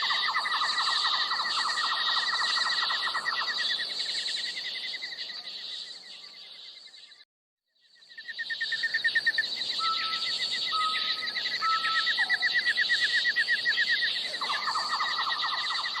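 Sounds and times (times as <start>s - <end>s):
birds chirping: 0.0s - 7.2s, 7.8s - 16.0s
bird trill: 7.9s - 16.0s
bird whistles: 8.5s - 16.0s.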